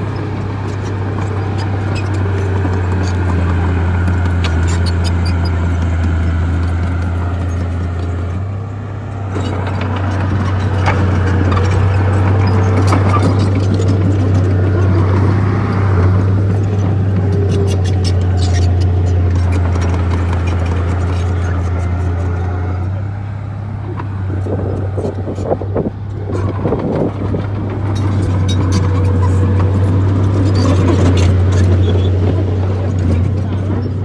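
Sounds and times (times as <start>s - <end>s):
bulldozer diesel engine drone: 0.0s - 34.0s
clicks and clanks: 9.3s - 15.2s, 16.0s - 22.5s.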